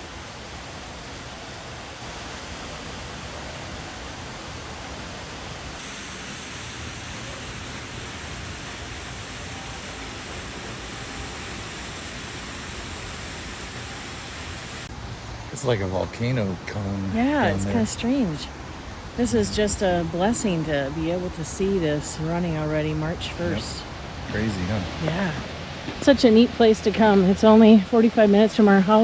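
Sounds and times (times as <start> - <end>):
waterfall rushing: 1.3 - 20.0, 23.3 - 25.8.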